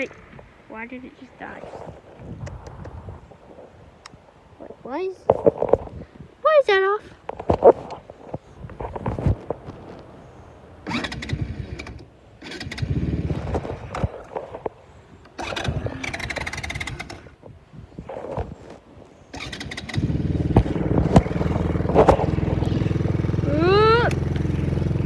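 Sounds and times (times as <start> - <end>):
engine running steadily: 8.7 - 17.4, 19.3 - 25.0
engine cranking: 10.8 - 25.0.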